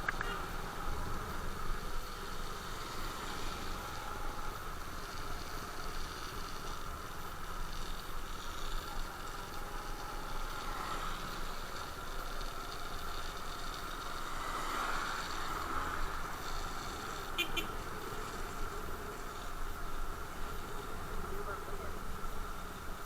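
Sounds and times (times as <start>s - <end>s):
quick clicks: 0.0s - 0.4s.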